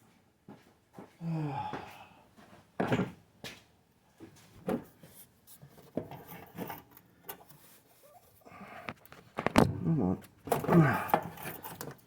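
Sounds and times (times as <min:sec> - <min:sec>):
tool scraping and clicking on metal: 0:05.5 - 0:08.4.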